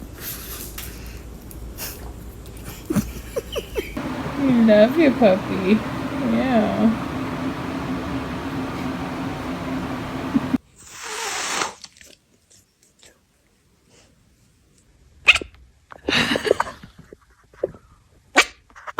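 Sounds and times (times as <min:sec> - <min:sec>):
steady hum: 0:04.0 - 0:10.6.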